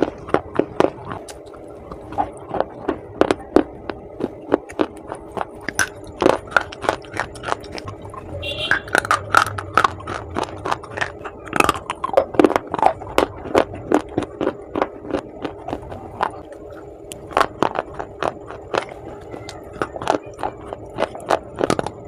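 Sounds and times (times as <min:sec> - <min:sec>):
clay being chewed crunching: 0:00.0 - 0:22.0.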